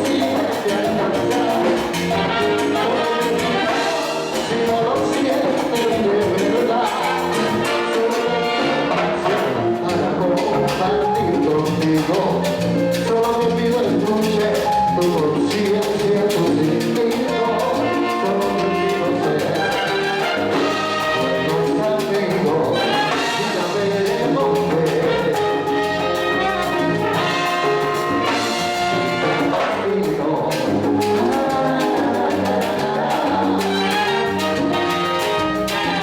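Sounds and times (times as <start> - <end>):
salsa band playing: 0.0 - 36.0
trumpets and trombones: 0.1 - 10.1, 17.3 - 24.2, 24.8 - 30.1, 33.3 - 36.0.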